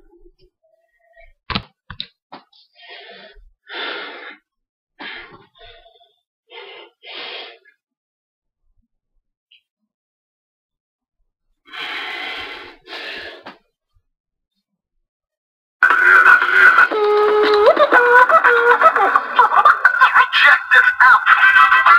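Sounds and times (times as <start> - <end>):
loud breathy exhalations: 11.7 - 13.6.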